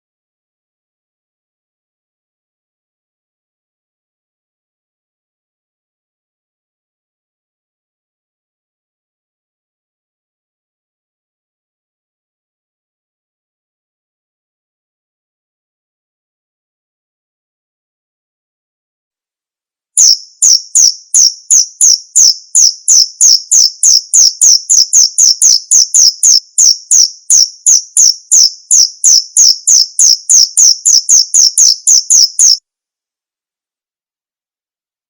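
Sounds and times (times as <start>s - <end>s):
cricket chirping: 20.0s - 32.6s.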